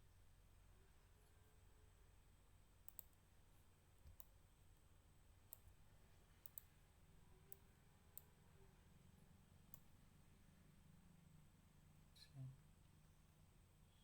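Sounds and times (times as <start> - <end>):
low room hum: 0.0 - 14.0
computer mouse clicks: 2.8 - 3.2, 4.0 - 4.4, 5.5 - 5.8, 6.4 - 6.7, 7.5 - 8.3, 9.7 - 9.9.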